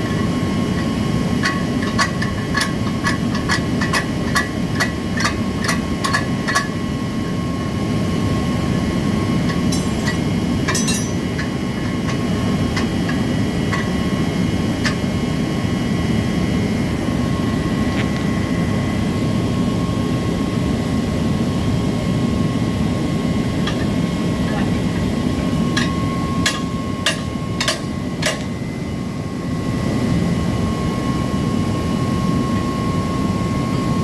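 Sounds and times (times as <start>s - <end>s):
machinery noise with whine: 0.0s - 34.0s
sharp metal taps: 9.5s - 12.2s, 25.8s - 28.5s.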